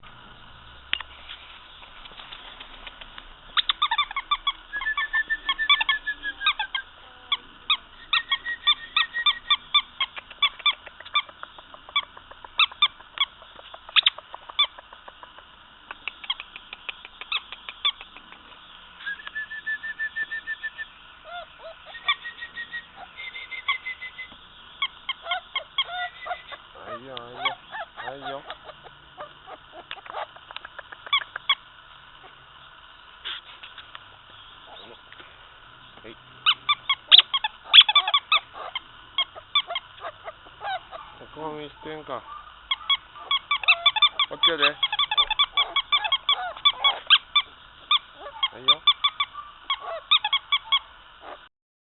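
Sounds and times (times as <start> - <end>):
puppies squealing and whining: 3.5 - 15.0, 21.2 - 31.6, 36.4 - 51.5.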